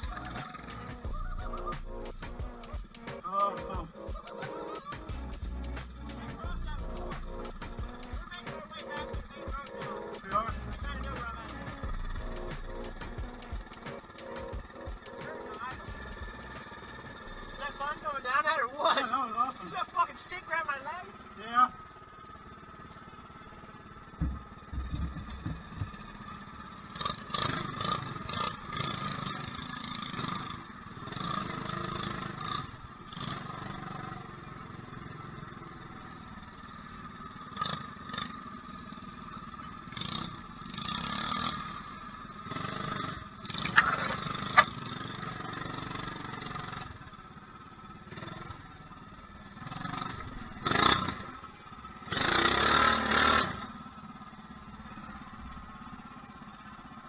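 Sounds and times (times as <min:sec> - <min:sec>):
mini bike engine running: 0:00.0 - 0:57.0
noisy engine surges: 0:00.0 - 0:57.0
scraping and clattering: 0:24.2 - 0:26.0.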